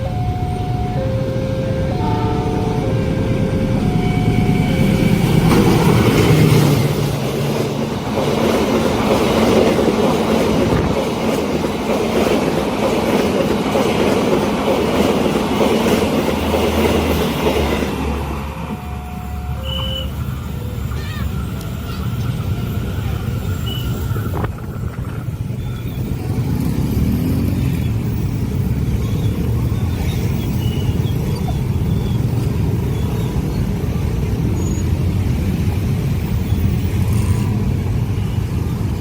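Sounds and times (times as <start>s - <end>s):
motorcycles and cars passing: 0.0s - 11.0s, 19.8s - 32.8s.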